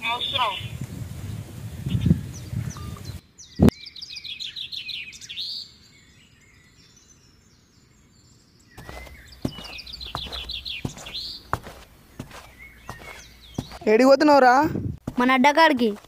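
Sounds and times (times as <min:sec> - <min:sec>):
songbird chirping: 0:00.0 - 0:16.0
footsteps: 0:08.8 - 0:14.0, 0:15.0 - 0:16.0.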